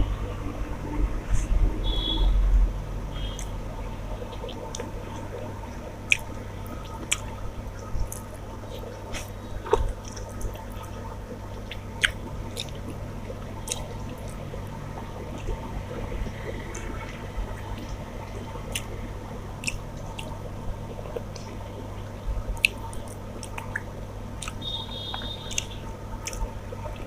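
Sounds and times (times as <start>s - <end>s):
low hum: 0.0s - 27.0s
mouth clicks and smacks: 3.2s - 3.6s, 4.2s - 11.0s, 11.6s - 14.4s, 18.7s - 19.0s, 19.6s - 21.9s, 22.5s - 27.0s
person chewing with mouth sounds: 3.2s - 27.0s.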